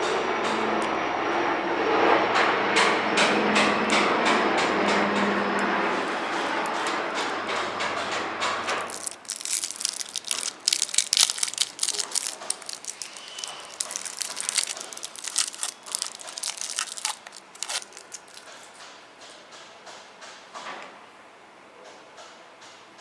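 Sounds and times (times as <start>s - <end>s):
candy packaging crinkling: 6.0s - 7.3s, 8.6s - 18.8s.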